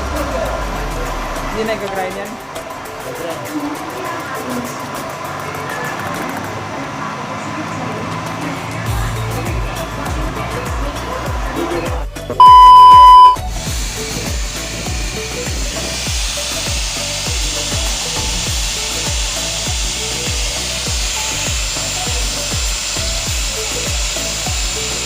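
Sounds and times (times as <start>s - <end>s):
electronic beep: 12.4s - 13.4s.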